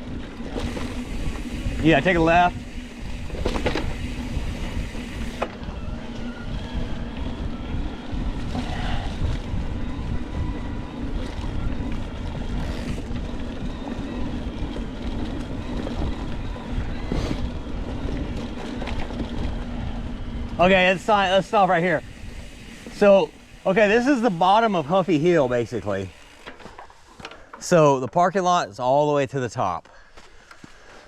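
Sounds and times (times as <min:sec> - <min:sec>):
bike tyres rumbling on dirt: 0:00.0 - 0:27.7
bike knocking over bumps: 0:03.1 - 0:05.6.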